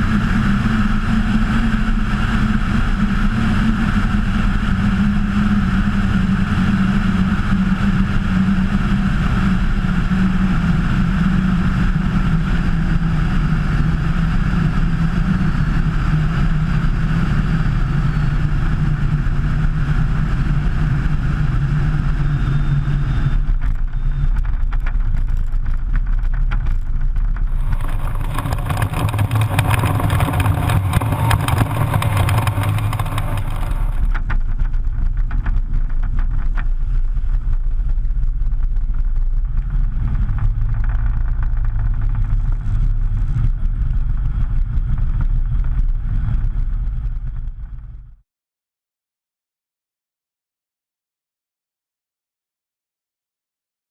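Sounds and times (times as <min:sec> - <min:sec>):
light aircraft engine and propeller: 0:00.0 - 0:25.1, 0:27.4 - 0:48.1
rushing noise: 0:27.5 - 0:34.3.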